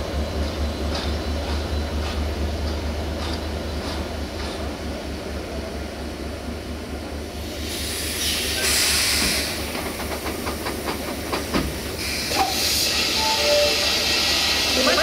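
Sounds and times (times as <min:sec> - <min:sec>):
compressed air hissing from brakes: 0:07.4 - 0:09.8, 0:11.9 - 0:15.0.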